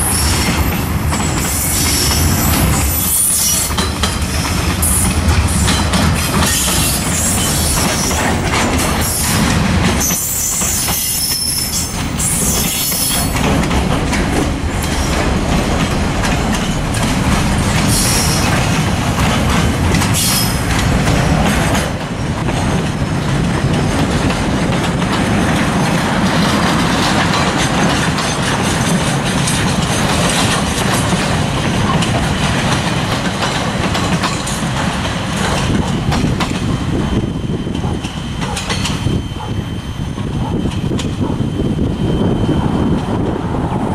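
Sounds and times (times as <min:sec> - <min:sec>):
freight train rolling: 0:00.0 - 0:43.9
high wheel squeal: 0:10.0 - 0:13.4, 0:17.9 - 0:18.6.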